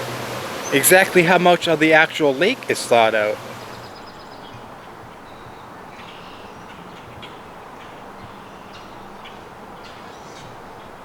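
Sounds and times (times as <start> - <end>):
outdoor hiss: 0.0 - 5.1
faint bird calls: 0.0 - 10.9.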